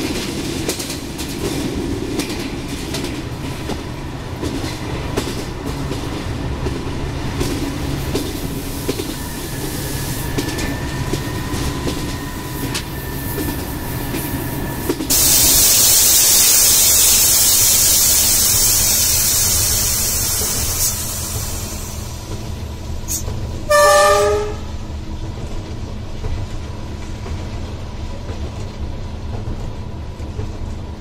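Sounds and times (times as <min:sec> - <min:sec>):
train rumbling on track: 0:00.0 - 0:31.0
loud hiss: 0:06.9 - 0:23.3.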